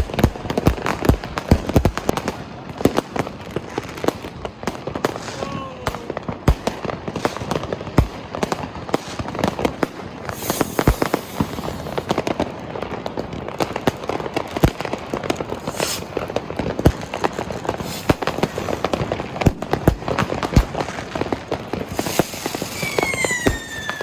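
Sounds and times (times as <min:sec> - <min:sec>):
fireworks bangs and pops: 0:00.0 - 0:24.0
fireworks hissing bursts: 0:05.0 - 0:12.6, 0:14.4 - 0:24.0.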